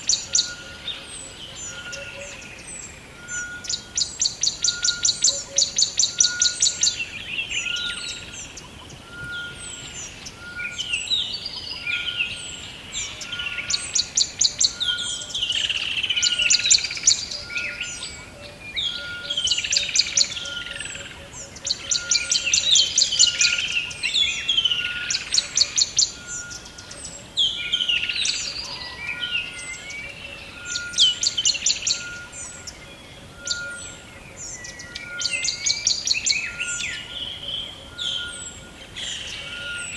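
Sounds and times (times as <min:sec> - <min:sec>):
birds trilling: 0:00.0 - 0:39.9
birds warbling: 0:00.0 - 0:39.9.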